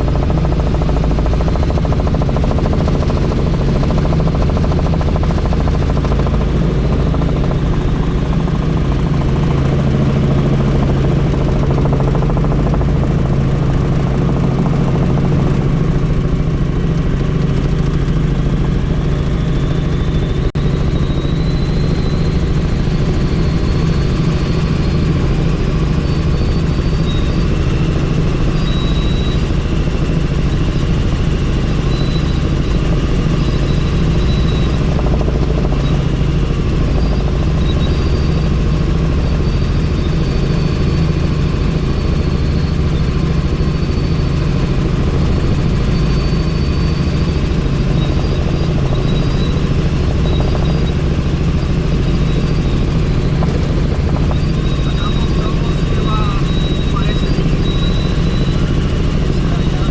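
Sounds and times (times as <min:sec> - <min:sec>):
helicopter rotor and engine drone: 0:00.0 - 0:59.9.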